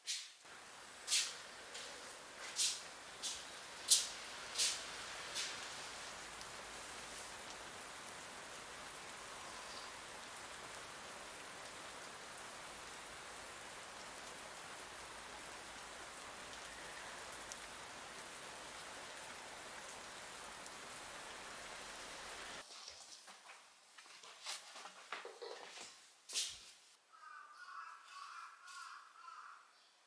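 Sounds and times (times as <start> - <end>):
steady rain falling: 0.4 - 22.7.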